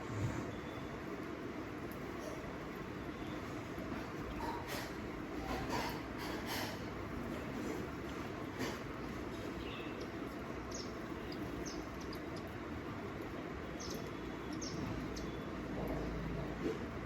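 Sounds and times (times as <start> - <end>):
low background noise: 0.0 - 17.0
small bird chirping: 9.3 - 12.6, 13.6 - 16.2.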